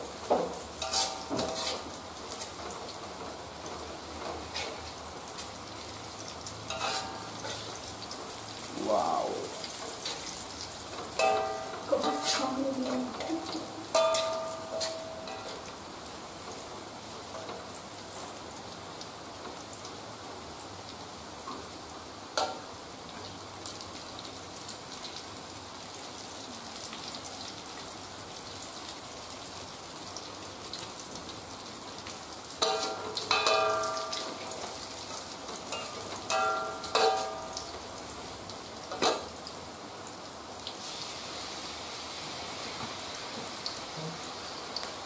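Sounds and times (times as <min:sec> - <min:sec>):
vegetables sizzling in oil: 0:00.0 - 0:45.0
metal spatula scraping a wok: 0:00.8 - 0:01.9, 0:04.5 - 0:04.8, 0:06.7 - 0:07.8, 0:11.2 - 0:12.6, 0:13.2 - 0:15.7, 0:32.6 - 0:34.5.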